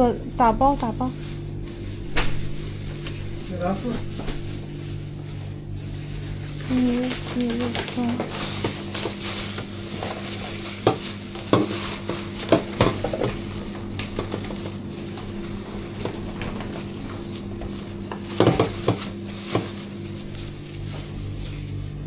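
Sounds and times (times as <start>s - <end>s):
electrical hum: 0.0s - 22.0s
food rustling and crackling: 0.9s - 22.0s
utensils tapping: 6.7s - 15.4s, 16.0s - 19.8s.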